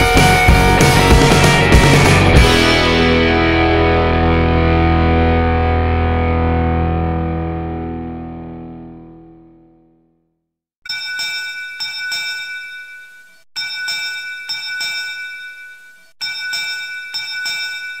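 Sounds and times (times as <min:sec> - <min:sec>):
background music: 0:00.0 - 0:09.1
bell-like chime jingle: 0:10.9 - 0:18.0.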